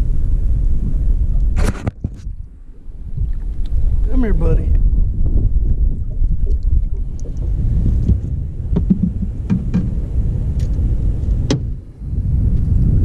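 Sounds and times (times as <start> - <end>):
wind buffeting microphone: 0.0 - 13.0
sharp clicks and knocks: 8.0 - 10.0.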